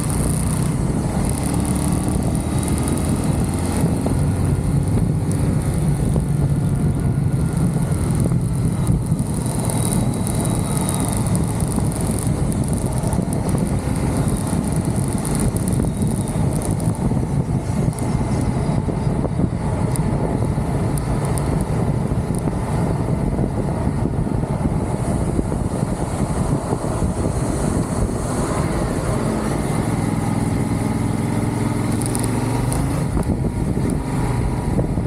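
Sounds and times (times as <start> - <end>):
motorcycle engine running: 0.0 - 35.0
road noise: 0.0 - 35.0
wind rushing: 0.0 - 35.0.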